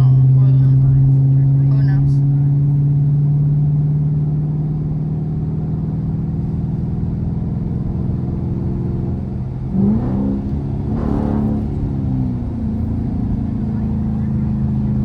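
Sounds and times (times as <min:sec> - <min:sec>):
car engine running and revving: 0:00.0 - 0:15.0.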